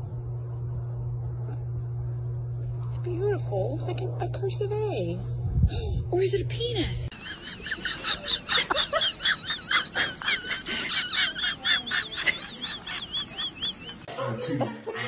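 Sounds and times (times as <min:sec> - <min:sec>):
bird chirping: 0:11.8 - 0:14.1.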